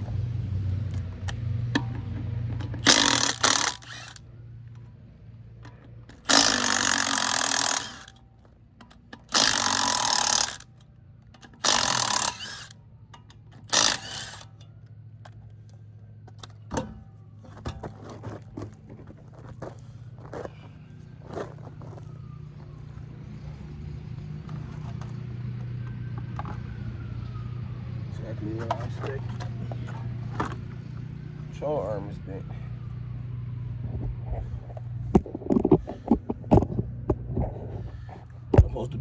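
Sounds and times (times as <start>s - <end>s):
impact wrench hammering: 2.7s - 4.2s, 6.1s - 8.2s, 9.1s - 10.8s, 11.4s - 14.6s.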